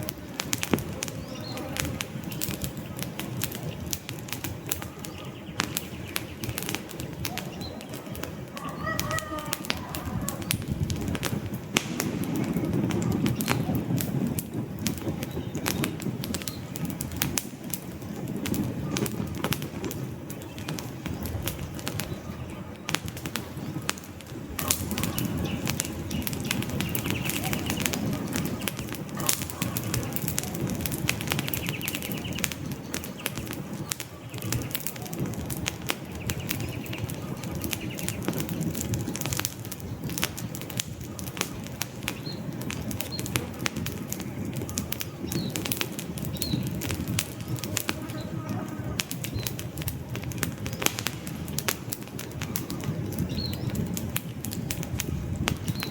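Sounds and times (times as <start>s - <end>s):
campfire crackling and popping: 0.0s - 55.9s
low rumble of flame: 0.0s - 55.9s
bird calling: 4.7s - 10.7s, 24.6s - 38.4s.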